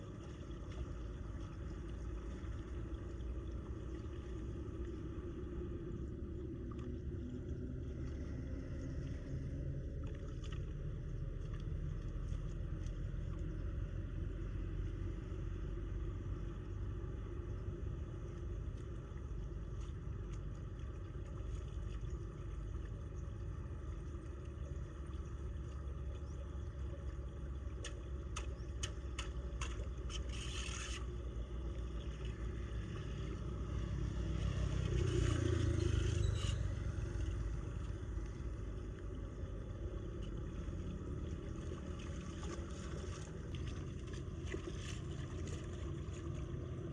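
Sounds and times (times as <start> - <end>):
floodwater draining down a drain: 0.0 - 46.9
short clicks and scrapes: 28.4 - 31.2.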